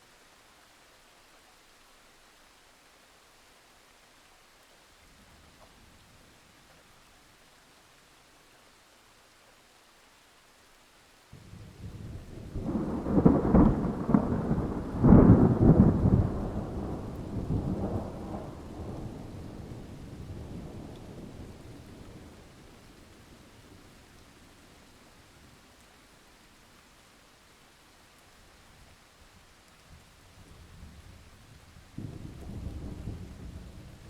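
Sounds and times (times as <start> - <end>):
faint steady rain: 0.0 - 34.0
thunder rumbling: 11.4 - 22.8, 31.9 - 34.0.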